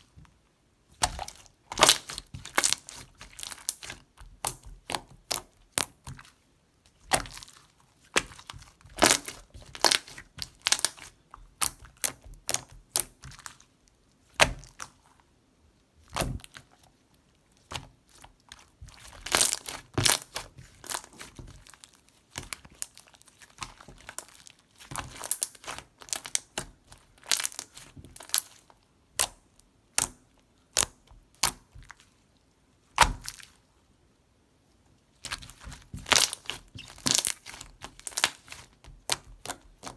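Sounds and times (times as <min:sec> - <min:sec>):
slime squeezed crackling: 0:01.0 - 0:06.3, 0:06.9 - 0:13.6, 0:17.6 - 0:28.6, 0:35.2 - 0:39.9.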